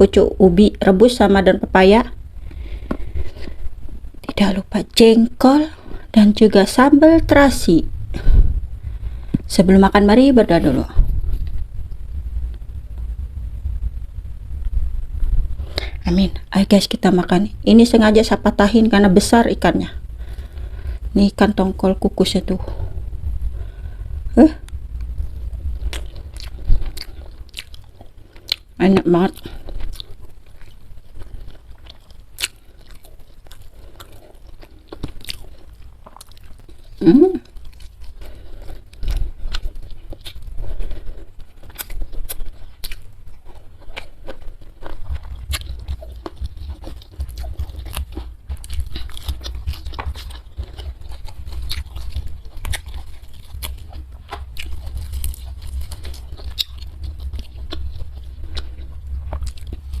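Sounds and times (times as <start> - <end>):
chewing and crunching food: 19.8 - 60.0.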